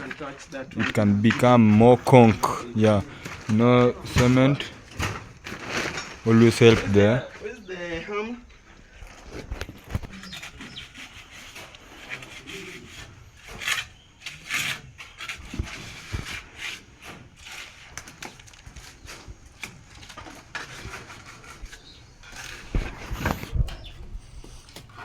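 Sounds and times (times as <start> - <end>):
hand tools scraping and rubbing: 8.6 - 25.0.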